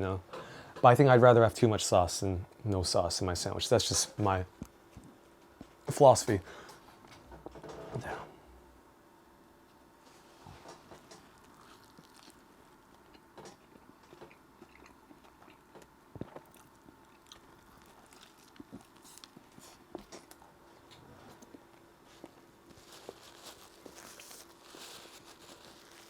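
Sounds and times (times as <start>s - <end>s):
chewing mouth clicks and smacks: 11.3s - 20.4s.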